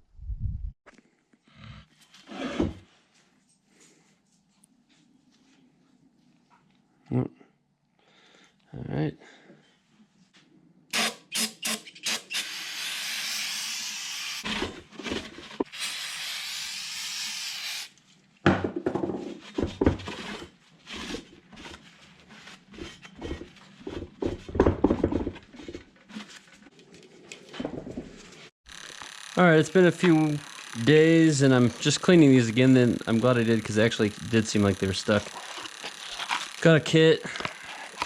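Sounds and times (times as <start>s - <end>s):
aerosol spray hiss: 15.8s - 17.9s.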